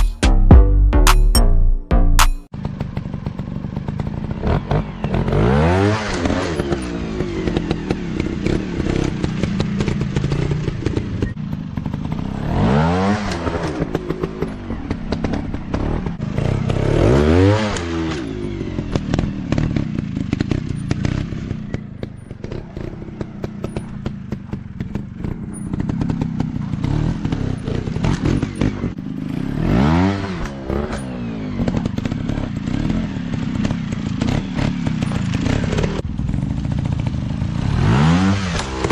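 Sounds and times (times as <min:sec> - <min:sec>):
dirt bike engines revving: 0:02.7 - 0:38.9.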